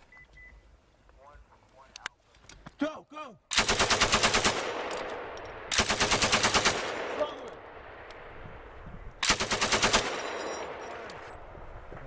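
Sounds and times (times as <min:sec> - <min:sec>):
gunfire echo: 0:03.5 - 0:07.7
machine gun bursts: 0:03.6 - 0:04.7, 0:05.7 - 0:07.0, 0:09.2 - 0:10.5.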